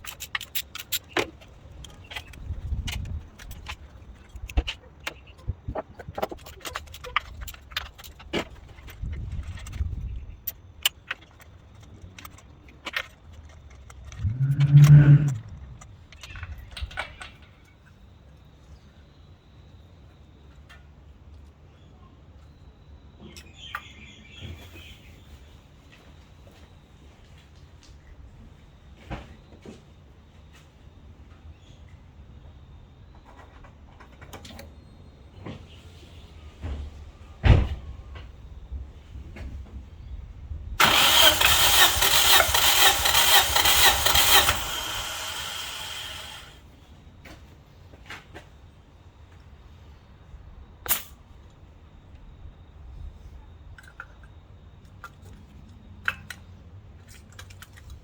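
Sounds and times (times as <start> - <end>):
metal tools clinking: 0.0 - 2.4
hands handling parts clicking: 0.0 - 5.4
mechanical whirr: 13.4 - 16.7, 40.8 - 46.6
low steady rumble: 13.4 - 16.8.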